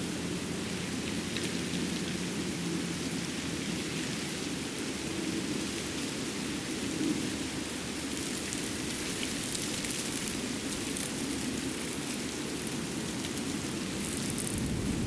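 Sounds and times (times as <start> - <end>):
steady rushing noise: 10.2 - 15.0.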